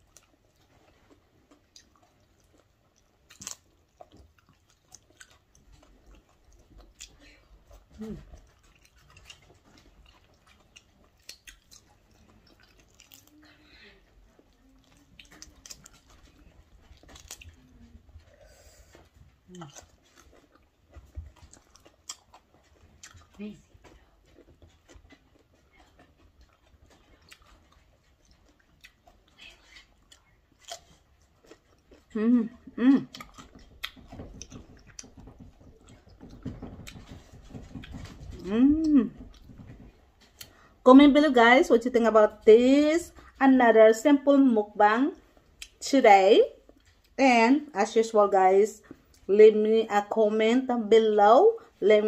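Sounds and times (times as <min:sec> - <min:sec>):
person chewing food: 0:00.0 - 0:40.8, 0:45.1 - 0:45.8, 0:46.6 - 0:47.2, 0:48.8 - 0:49.3
mouth clicks and lip smacks: 0:19.6 - 0:40.7.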